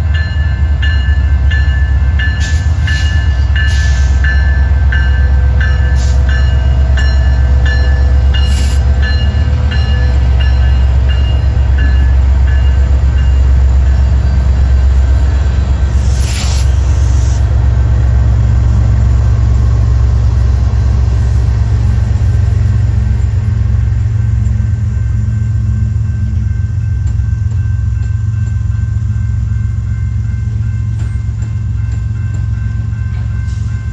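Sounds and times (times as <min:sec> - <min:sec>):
train rumbling by: 0:00.0 - 0:33.9
short hiss: 0:15.9 - 0:17.5.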